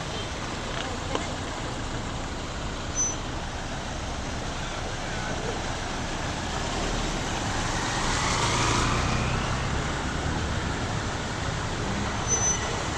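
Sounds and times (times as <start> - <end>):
rain hissing: 0.0 - 12.9
vehicle passing on wet road: 3.4 - 12.9.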